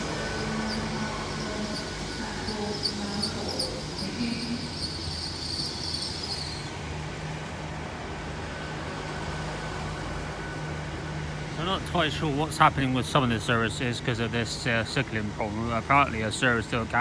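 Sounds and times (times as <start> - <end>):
train brakes squealing: 0.0 - 7.2
train engines humming: 0.0 - 17.0.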